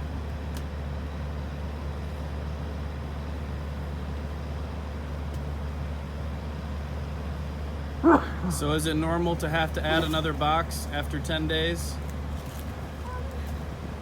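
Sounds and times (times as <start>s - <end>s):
steady low rumble: 8.0s - 12.4s.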